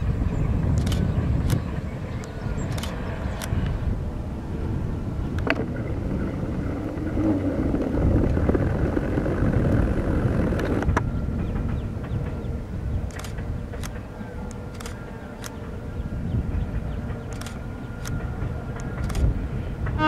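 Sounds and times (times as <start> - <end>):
train wheels rumbling on rails: 0.0 - 20.0
sharp clicks: 0.7 - 1.6, 2.2 - 3.6, 13.1 - 15.6, 17.2 - 19.3.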